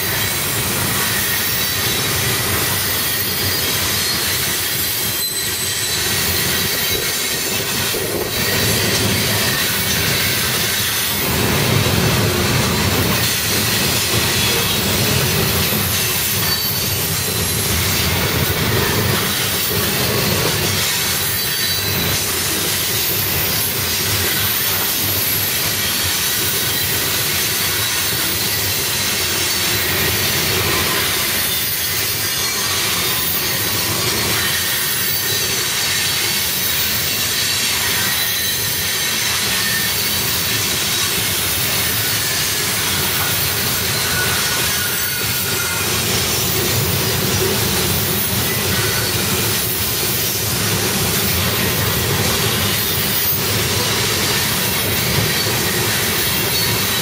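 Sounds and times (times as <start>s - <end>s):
freight train wheels rumbling on rail: 0.0s - 57.0s
high-pitched wheel squeal: 0.2s - 11.2s, 15.8s - 57.0s.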